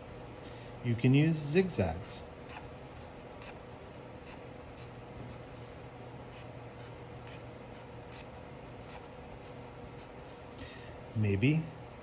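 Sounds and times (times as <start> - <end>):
drawing tool scratching on paper: 2.5 - 3.6.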